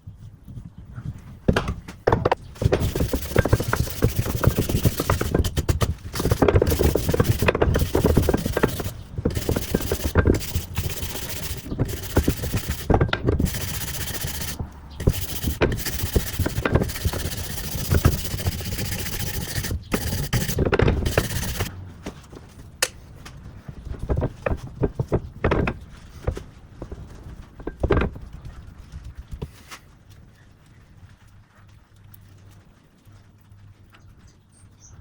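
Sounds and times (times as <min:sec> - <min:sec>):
scraping parts by hand: 0:02.1 - 0:21.7.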